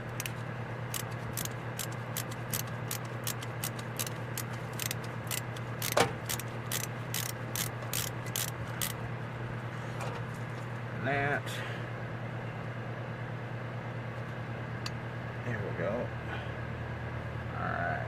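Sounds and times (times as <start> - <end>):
hand tool clicking: 0.1 - 9.0.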